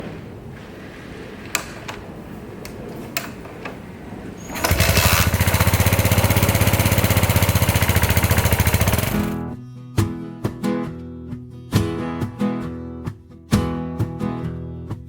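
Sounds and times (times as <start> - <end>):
motorcycle engine idling: 4.5 - 9.4.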